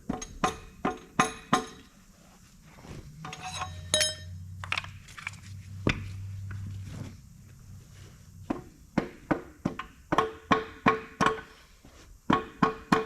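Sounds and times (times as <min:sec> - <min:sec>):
low steady hum: 0:00.0 - 0:12.4
metal tools clinking: 0:03.2 - 0:05.4.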